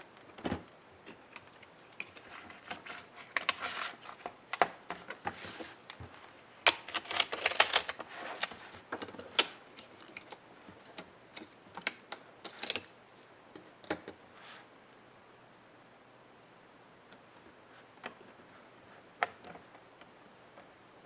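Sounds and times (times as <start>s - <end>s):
tools prying plastic apart: 6.7s - 8.6s.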